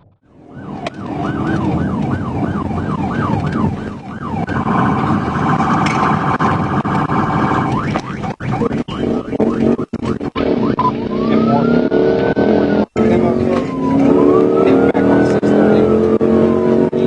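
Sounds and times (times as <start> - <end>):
car road and engine noise: 0.0 - 17.0
police siren yelp and warble: 0.2 - 17.0.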